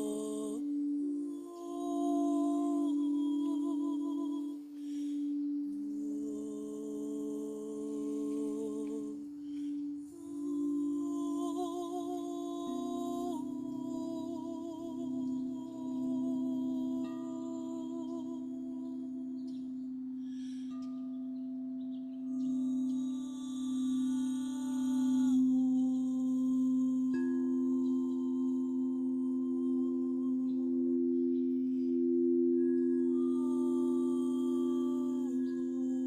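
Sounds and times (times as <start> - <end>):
held meditative tones: 0.0 - 36.0.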